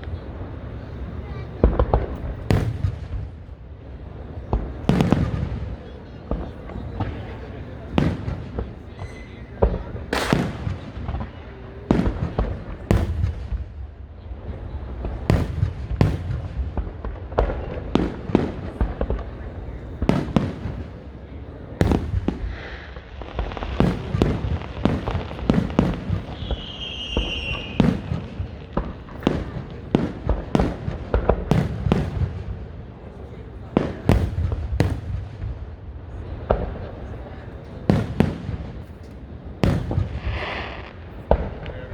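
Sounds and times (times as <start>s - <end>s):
fireworks bangs: 0.0s - 41.9s
firework whistle: 22.4s - 28.2s.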